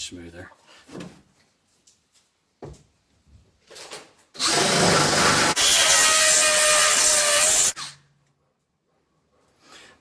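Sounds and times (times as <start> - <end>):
power drill boring through steel: 4.4 - 7.8.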